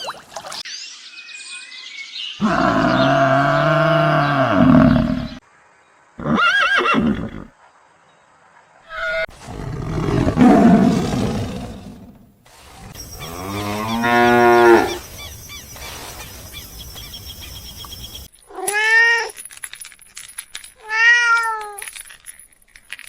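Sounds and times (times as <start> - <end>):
long low animal call: 2.4 - 5.4
long rough animal call: 2.4 - 5.4.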